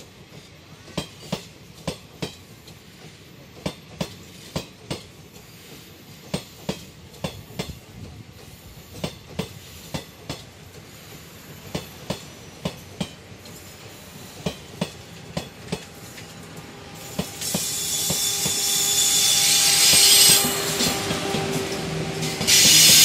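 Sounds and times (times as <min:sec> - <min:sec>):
train wheels clicking over rail joints: 0:00.0 - 0:23.0
locomotive blowers hissing and humming: 0:15.9 - 0:23.0.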